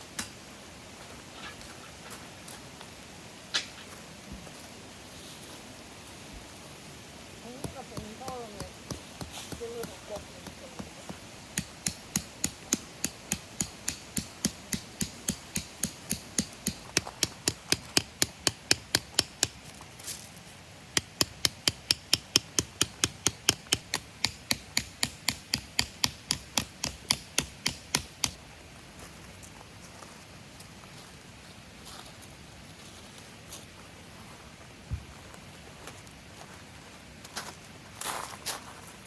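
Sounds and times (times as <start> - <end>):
hammer striking tent peg: 7.6 - 19.6, 21.0 - 28.4.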